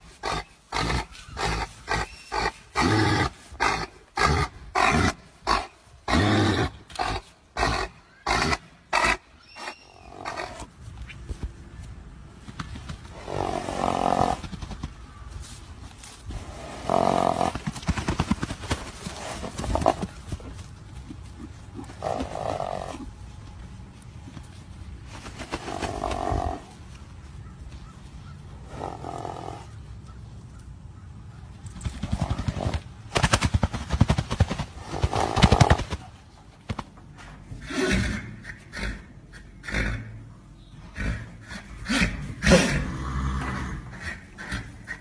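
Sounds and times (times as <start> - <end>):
animal harsh grunting calls: 0.2 - 10.7, 37.6 - 45.0.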